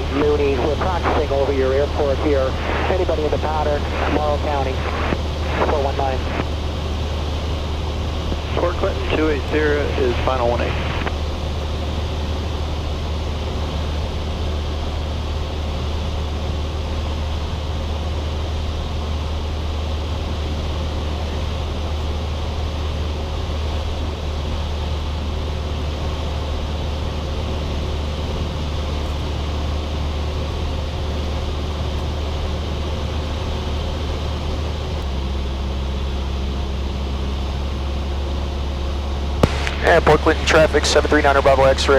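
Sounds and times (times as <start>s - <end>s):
aircraft engine and propeller droning: 0.0s - 41.9s.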